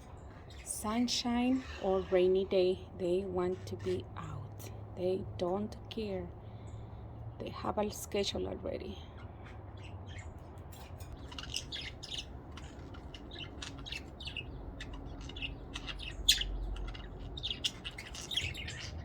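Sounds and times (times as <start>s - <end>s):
budgerigars chirping: 11.1s - 19.0s.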